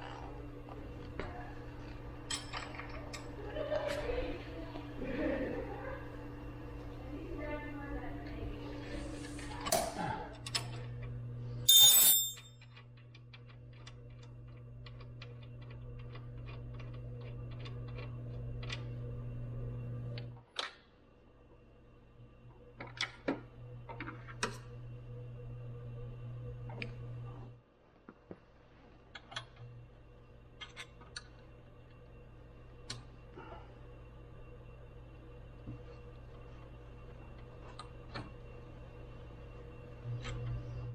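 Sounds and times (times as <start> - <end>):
low electrical hum: 0.0 - 40.9
sharp metallic clank: 11.7 - 12.5
small metal tools clinking: 11.7 - 12.6
low hum: 29.3 - 40.9.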